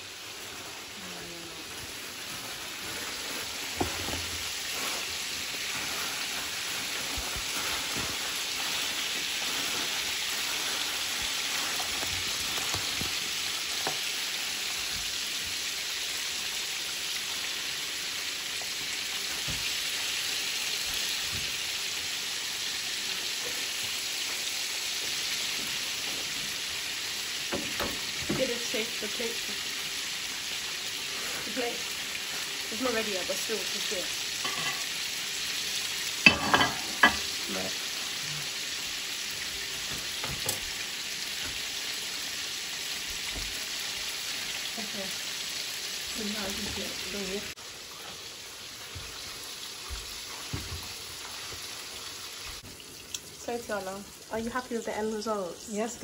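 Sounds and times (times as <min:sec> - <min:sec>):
chicken sizzling in hot oil: 0:00.0 - 0:56.0.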